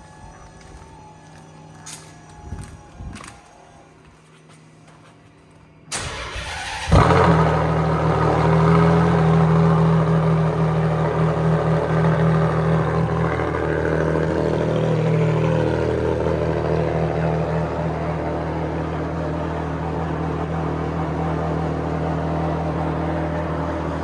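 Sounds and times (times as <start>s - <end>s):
starter motor cranking: 5.9s - 19.8s
engine starting and idling: 5.9s - 24.0s.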